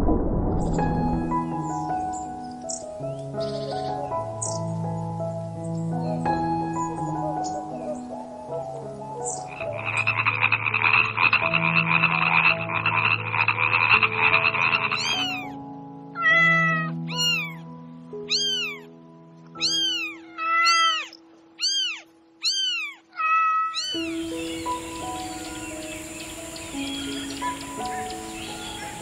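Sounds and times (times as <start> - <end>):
frog rasping trill: 9.4 - 15.6, 16.2 - 17.6, 18.3 - 18.8, 19.6 - 29.0
kitten mewing: 15.0 - 15.5, 16.2 - 17.6, 18.3 - 18.9, 19.6 - 24.1.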